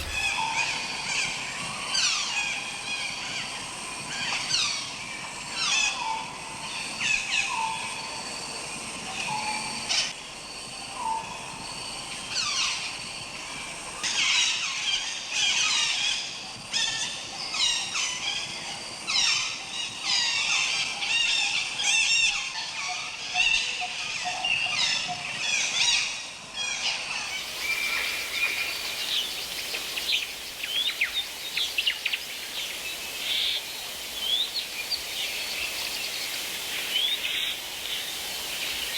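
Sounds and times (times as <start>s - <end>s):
birds chirping and trilling: 0.0s - 0.6s, 27.3s - 38.9s
background hiss: 0.0s - 1.6s, 27.2s - 38.9s.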